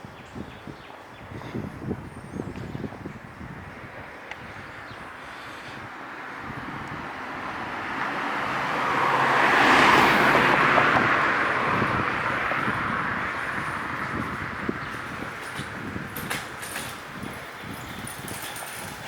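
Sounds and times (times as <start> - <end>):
vehicle passing by: 5.7 - 16.0.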